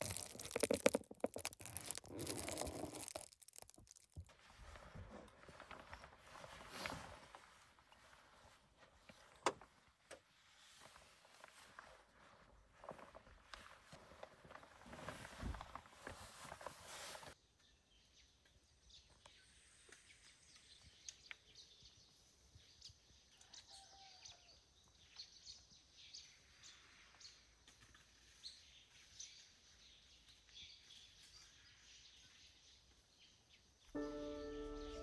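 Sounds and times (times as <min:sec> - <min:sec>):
soft bird chirps: 0:17.4 - 0:35.0.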